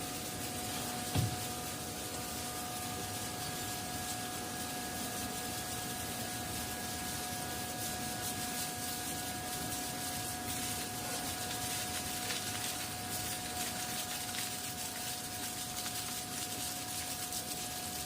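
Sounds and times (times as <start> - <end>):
ice machine humming: 0.0 - 18.0
flake ice crackling rustle: 7.4 - 18.0.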